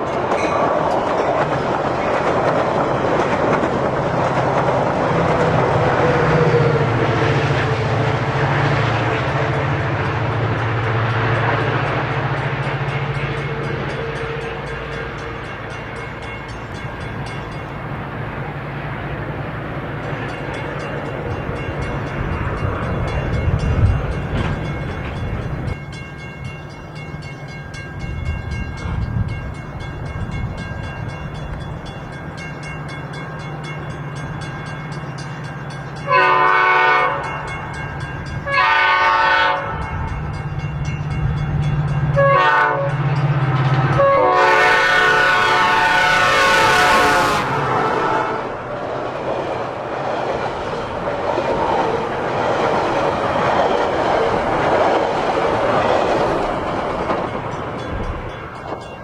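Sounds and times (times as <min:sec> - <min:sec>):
diesel locomotive engine drone: 0:00.0 - 0:59.0
rail rumble: 0:00.0 - 0:59.0
train air horn blasts: 0:36.0 - 0:37.4, 0:38.4 - 0:40.3, 0:42.1 - 0:48.6.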